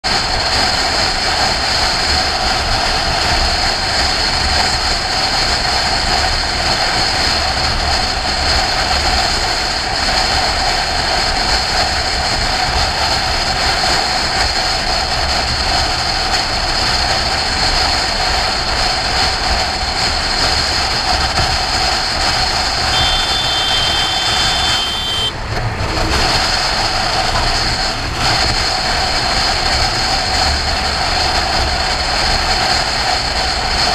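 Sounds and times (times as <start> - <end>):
road noise: 0.0 - 33.9
wind rush: 0.1 - 33.9
motorcycle engine: 19.1 - 30.9
thin high tone: 22.9 - 25.4.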